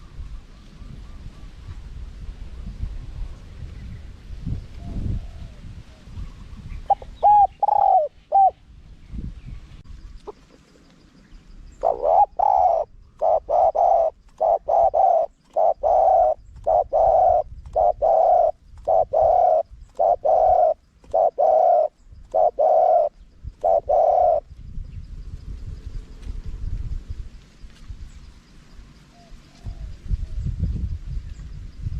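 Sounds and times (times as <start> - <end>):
dove cooing: 4.8 - 8.6, 11.8 - 24.5.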